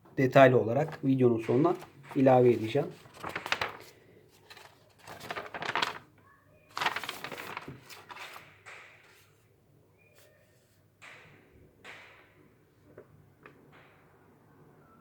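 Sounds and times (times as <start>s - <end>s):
paper pages rustling: 0.8s - 6.1s, 6.7s - 9.4s.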